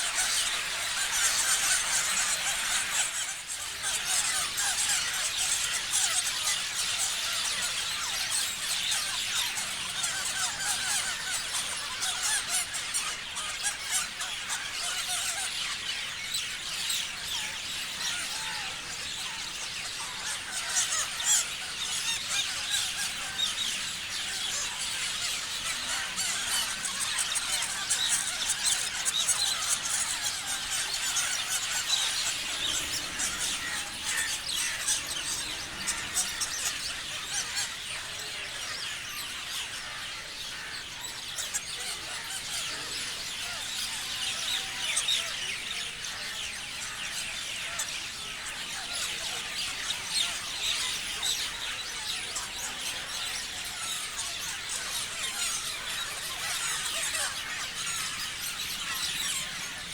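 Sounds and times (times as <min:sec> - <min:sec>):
parrots chirping: 0:00.0 - 0:16.5, 0:19.4 - 0:45.0.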